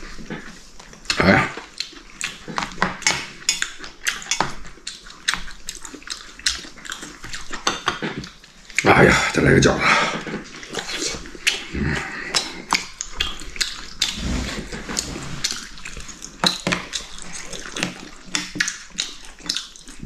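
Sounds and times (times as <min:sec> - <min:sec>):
eating sounds: 0:00.0 - 0:20.0
chopsticks and dishes clinking: 0:07.6 - 0:08.2.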